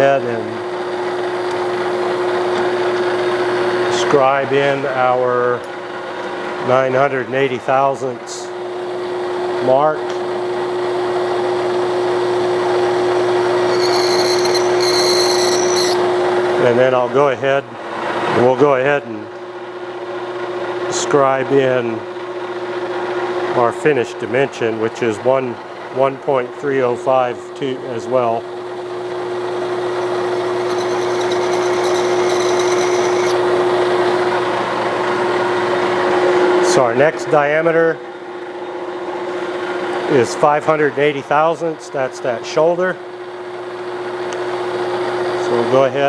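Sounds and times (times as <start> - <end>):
lathe whining: 10.3 - 16.7, 27.8 - 37.2
high scraping on spinning metal: 13.4 - 16.2, 29.0 - 34.2.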